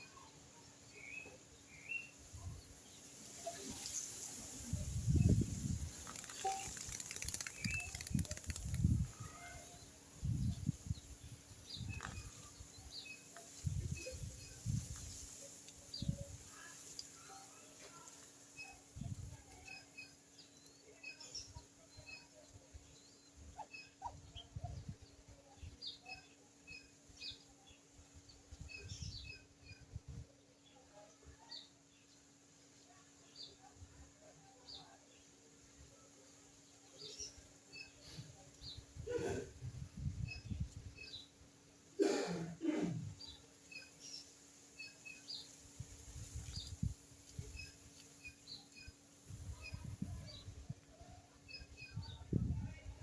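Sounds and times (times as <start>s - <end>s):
faint bird chirps: 3.3s - 32.0s.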